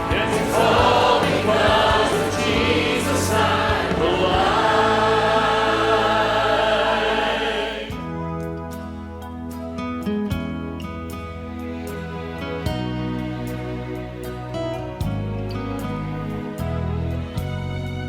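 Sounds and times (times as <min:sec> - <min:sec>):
choir singing a hymn: 0:00.0 - 0:08.1
instrumental accompaniment: 0:00.0 - 0:14.5.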